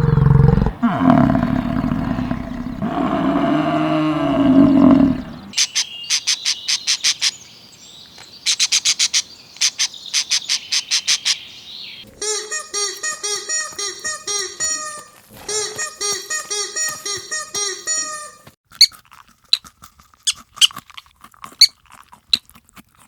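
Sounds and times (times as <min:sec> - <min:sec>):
animal's drawn-out wavering call: 0:00.0 - 0:05.6.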